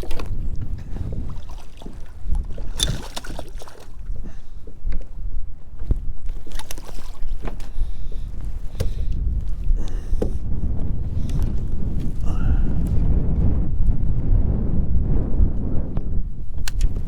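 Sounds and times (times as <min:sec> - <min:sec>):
wind rumbling on microphone: 0:00.0 - 0:17.0
water splashing: 0:01.0 - 0:04.1.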